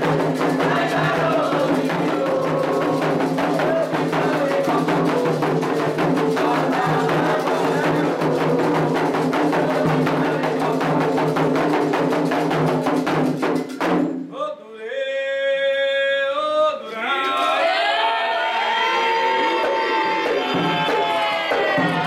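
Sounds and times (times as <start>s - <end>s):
group chanting: 0.0s - 13.1s, 15.2s - 22.0s
bell percussion: 0.0s - 14.2s
hand drums beating: 0.0s - 14.2s, 19.5s - 22.0s
person singing alone: 14.3s - 18.3s.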